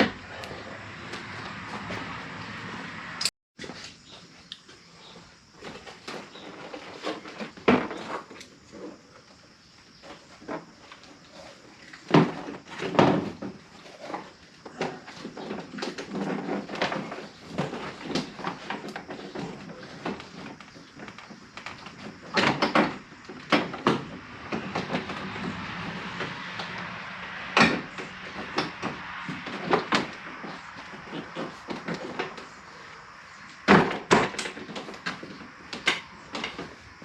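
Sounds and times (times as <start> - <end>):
clicks and rattles of hand work: 10.0 - 26.9, 33.5 - 36.8.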